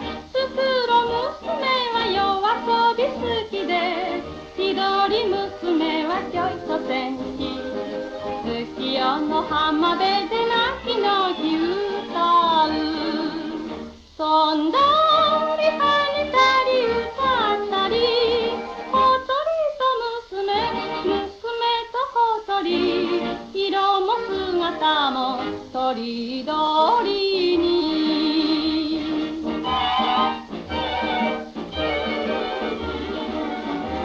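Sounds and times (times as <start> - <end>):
instrumental accompaniment: 0.0 - 19.3, 22.7 - 34.0
woman singing yodel-like trills: 0.0 - 34.0.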